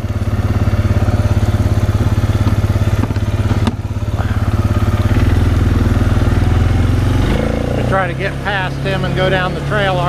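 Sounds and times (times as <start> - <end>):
atv engine running: 0.0 - 10.0
sharp knocks: 2.0 - 3.9.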